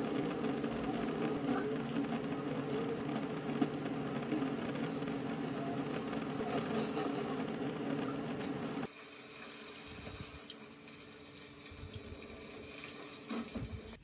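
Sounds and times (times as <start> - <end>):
train rumbling: 0.0 - 8.9.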